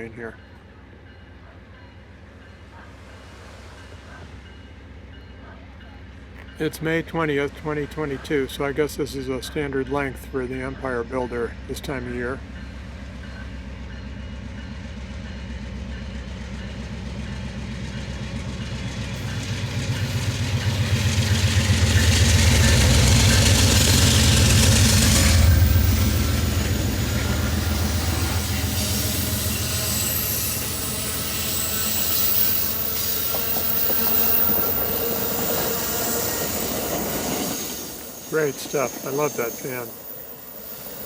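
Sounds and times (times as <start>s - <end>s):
train wheels clattering on rails: 12.4s - 39.0s.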